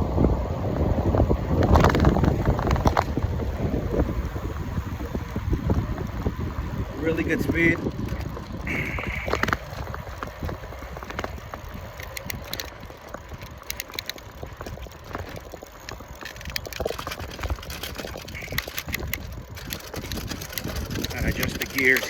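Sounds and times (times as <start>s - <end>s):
bicycle tyres rumbling: 0.0s - 22.0s
wind on microphone: 0.0s - 22.0s
small clicks and rattles: 1.6s - 3.2s, 7.0s - 22.0s.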